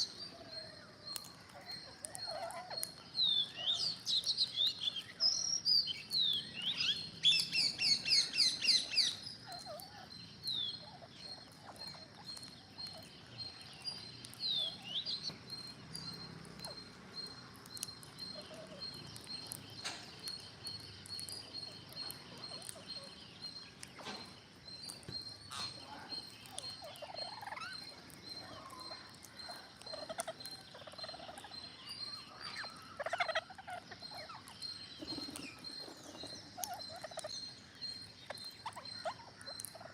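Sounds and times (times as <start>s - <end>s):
parrots chattering and screeching: 1.2s - 4.6s, 7.6s - 10.2s, 24.9s - 39.9s.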